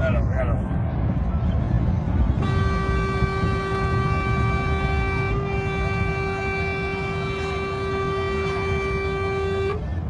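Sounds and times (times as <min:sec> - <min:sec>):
low rumble: 0:00.0 - 0:10.0
vehicle horn held note: 0:02.4 - 0:09.8.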